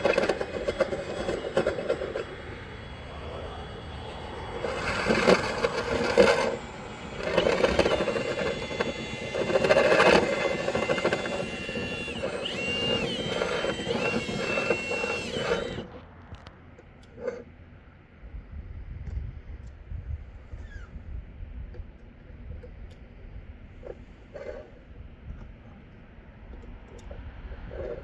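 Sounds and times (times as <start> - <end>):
rotary brush scraping duct: 0.0 - 15.8
drill motor whine: 0.0 - 16.5.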